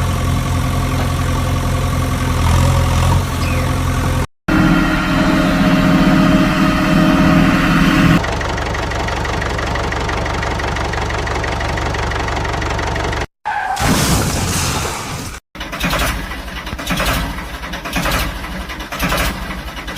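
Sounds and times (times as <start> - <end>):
vehicle engine idling: 0.0 - 13.3.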